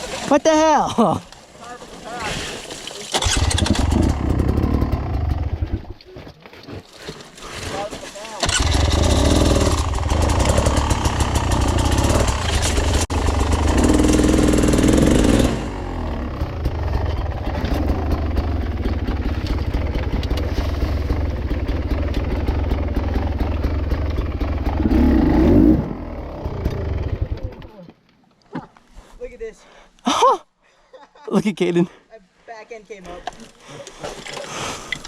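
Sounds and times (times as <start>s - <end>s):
dirt bike engine revving: 3.1s - 5.9s, 8.4s - 27.6s.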